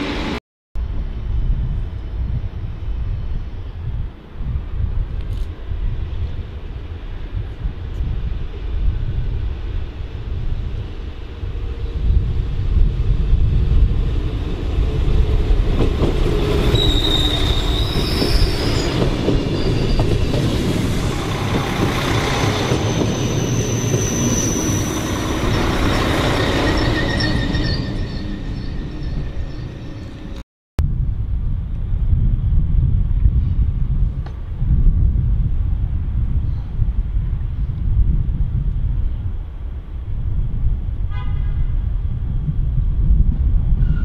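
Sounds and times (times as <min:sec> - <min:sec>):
train wheels rumbling over rails: 0:05.0 - 0:30.4
high thin wheel squeal: 0:16.6 - 0:20.8, 0:22.1 - 0:30.4.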